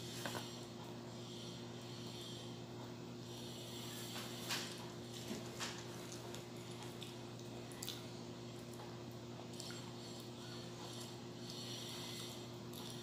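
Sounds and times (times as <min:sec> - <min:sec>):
person chewing food: 0:03.7 - 0:13.0.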